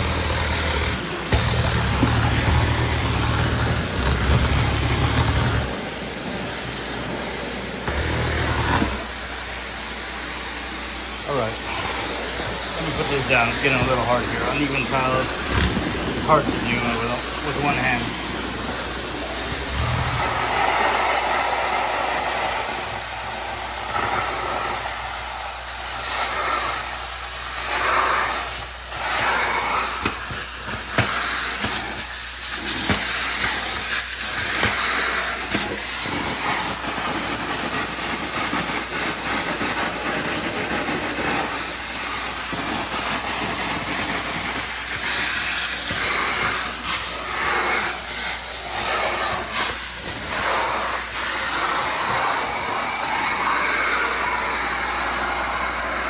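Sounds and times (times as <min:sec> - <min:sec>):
tool clicking over tiles: 0:00.0 - 0:05.8, 0:29.1 - 0:50.7
spray jets and vacuum hiss: 0:00.0 - 0:56.0.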